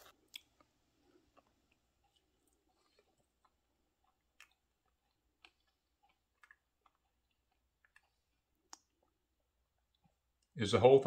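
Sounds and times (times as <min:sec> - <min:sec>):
faint chewing crunches: 0:00.0 - 0:10.6.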